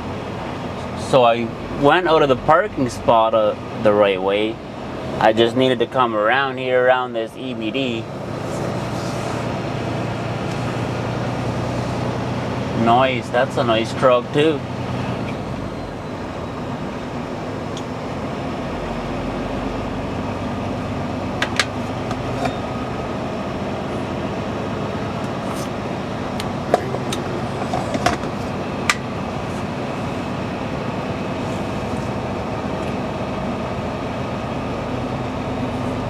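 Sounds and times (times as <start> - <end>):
diesel truck engine running: 0.0 - 36.0.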